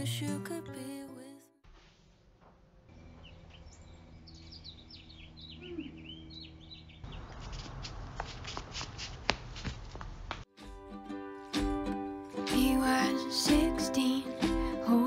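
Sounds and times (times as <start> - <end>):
small birds chirping: 2.9 - 8.2.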